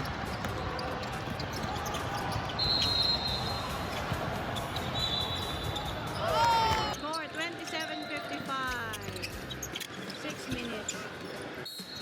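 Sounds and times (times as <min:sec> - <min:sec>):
basketball bouncing: 0:00.0 - 0:02.6
high shoe squeal: 0:00.0 - 0:12.0
murmur of the hall: 0:00.0 - 0:12.0.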